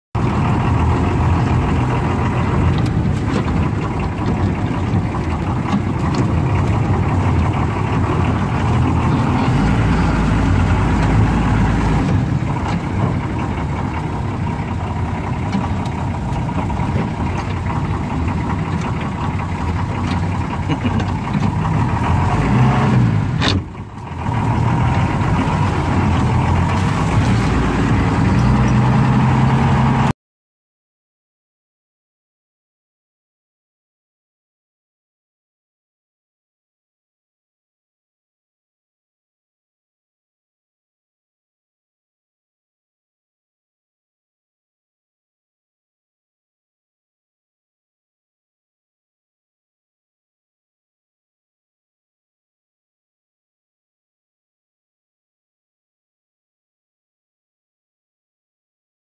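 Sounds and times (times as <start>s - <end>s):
off-road vehicle engine running: 0.2s - 30.1s
body rattles and knocks: 2.2s - 9.4s.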